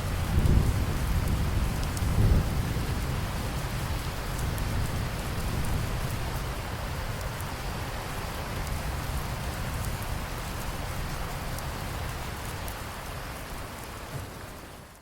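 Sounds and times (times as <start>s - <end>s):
thunder rumbling: 0.0s - 3.3s
heavy rain: 0.0s - 15.0s
rain drop ticks: 1.2s - 2.1s, 4.2s - 6.2s, 7.0s - 7.6s, 8.6s - 8.8s.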